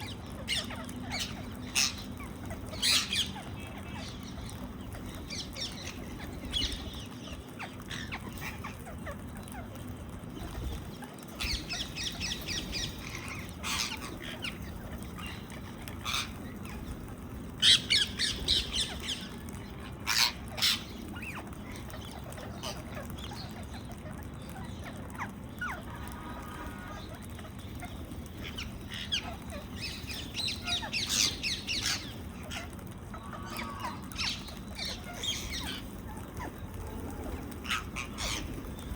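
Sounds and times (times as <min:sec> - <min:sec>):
low background noise: 0:00.0 - 0:38.9
parakeets calling: 0:00.0 - 0:38.9.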